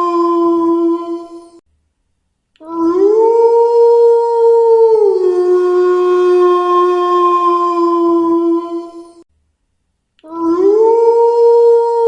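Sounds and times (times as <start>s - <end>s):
wolf howling: 2.7s - 9.1s, 10.3s - 12.0s.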